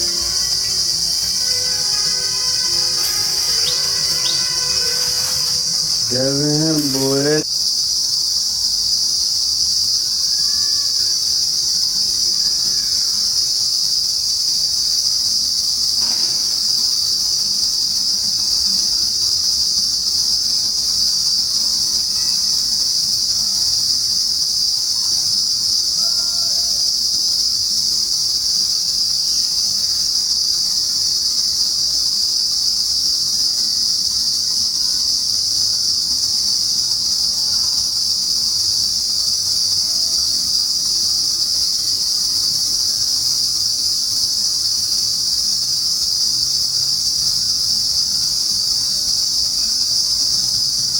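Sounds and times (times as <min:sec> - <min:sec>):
insect chorus: 0:00.0 - 0:50.9.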